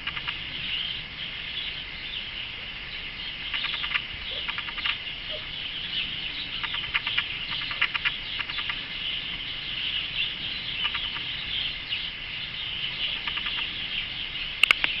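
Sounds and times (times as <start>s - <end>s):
canary singing: 0.0s - 2.4s, 3.2s - 15.0s
sharp click: 14.6s - 15.0s.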